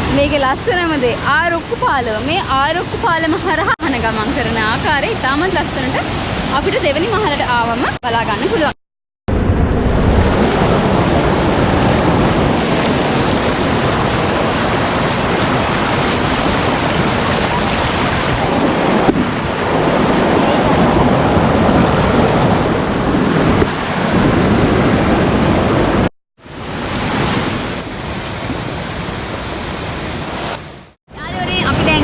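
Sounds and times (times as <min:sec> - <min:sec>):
waterfall rushing over rock: 0:12.6 - 0:18.6, 0:26.4 - 0:31.0.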